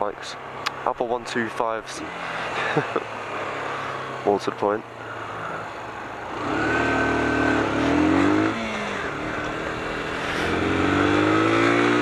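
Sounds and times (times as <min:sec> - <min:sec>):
motorcycle engine accelerating: 0:05.0 - 0:12.0.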